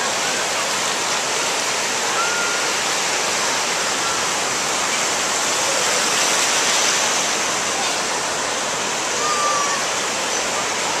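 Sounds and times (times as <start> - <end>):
ocean surf breaking on shore: 0.0 - 11.0.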